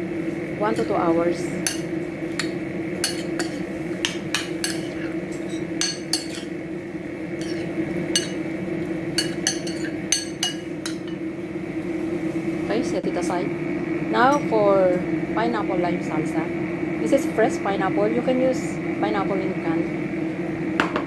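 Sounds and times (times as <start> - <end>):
steady background hum: 0.0 - 21.0
spoon clinking against bowl: 1.7 - 6.5, 7.4 - 8.4, 9.2 - 11.2.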